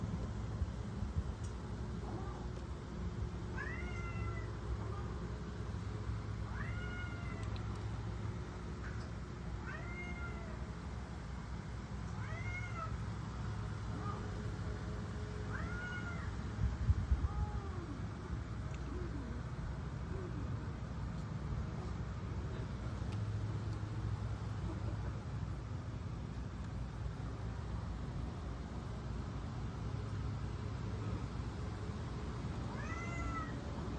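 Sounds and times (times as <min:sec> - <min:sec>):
steady low hum: 0:00.0 - 0:33.9
cat meowing: 0:03.6 - 0:05.1, 0:06.5 - 0:07.5, 0:09.6 - 0:10.6, 0:12.2 - 0:13.0, 0:15.5 - 0:16.3, 0:32.7 - 0:33.6.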